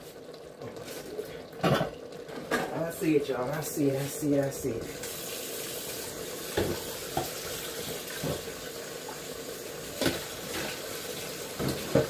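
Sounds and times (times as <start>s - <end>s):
kitchen tap running: 0.0s - 12.0s
pots and utensils knocking: 11.6s - 12.0s.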